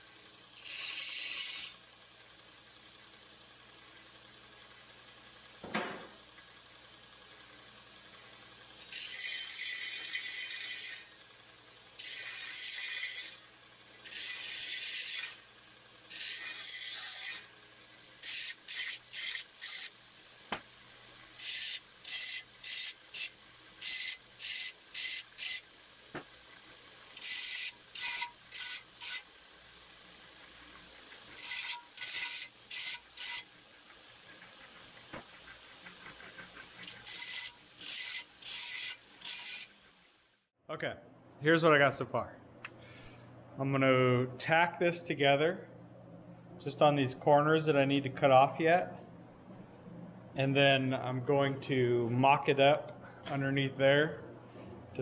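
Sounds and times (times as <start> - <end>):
file strokes on steel tubing: 8.8 - 11.1, 12.0 - 15.5, 16.1 - 17.5, 27.2 - 29.3, 30.7 - 33.5, 34.3 - 39.8.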